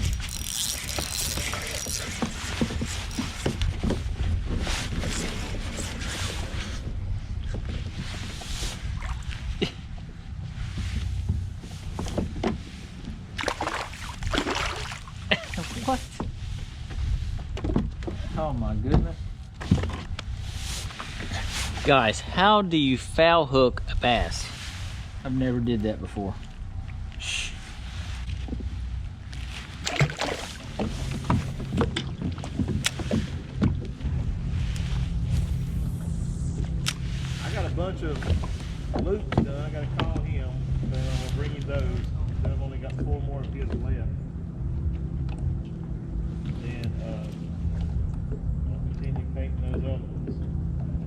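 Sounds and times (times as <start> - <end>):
wind rumbling on microphone: 0.0 - 22.0, 23.6 - 51.0
water splashing: 13.3 - 16.0, 29.6 - 33.5.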